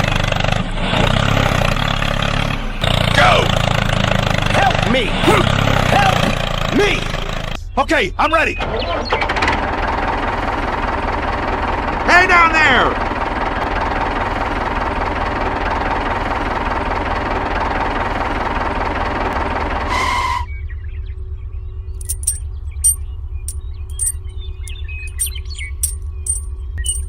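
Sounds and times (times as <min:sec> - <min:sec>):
low hum: 0:21.2 - 0:27.0.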